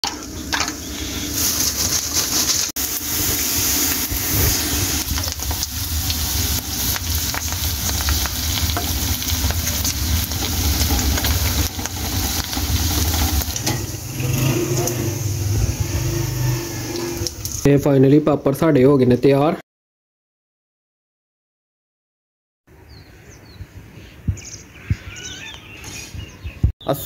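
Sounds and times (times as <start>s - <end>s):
food sizzling in hot oil: 0.0s - 17.7s
skimmer scraping against pan: 1.0s - 2.7s, 7.3s - 17.6s.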